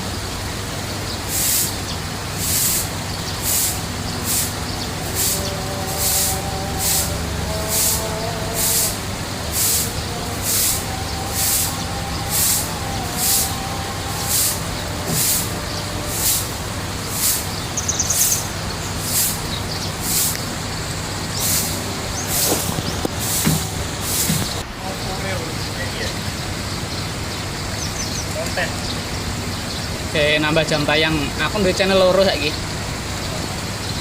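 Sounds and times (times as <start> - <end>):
steady low hum: 0.0 - 24.8
pulsing hiss: 0.6 - 26.3
bird trill: 9.6 - 20.3.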